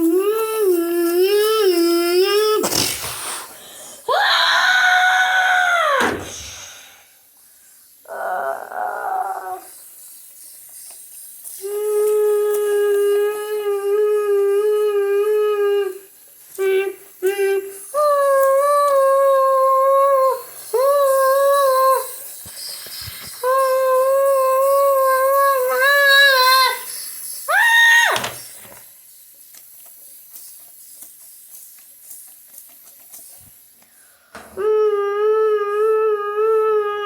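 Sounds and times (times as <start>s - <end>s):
person humming: 0.0s - 3.4s, 8.0s - 9.8s, 11.5s - 22.4s, 23.4s - 26.9s, 34.4s - 37.0s.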